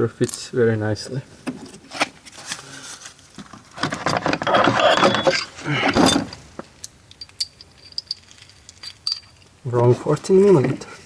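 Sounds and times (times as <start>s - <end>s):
metal tools clattering: 3.8s - 6.4s, 7.1s - 10.6s.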